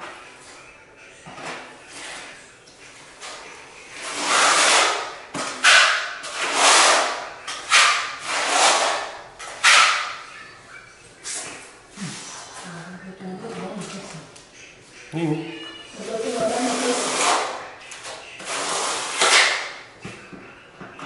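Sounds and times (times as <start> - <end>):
hand tool scraping concrete: 1.4 - 2.4, 3.2 - 10.1, 16.0 - 19.6.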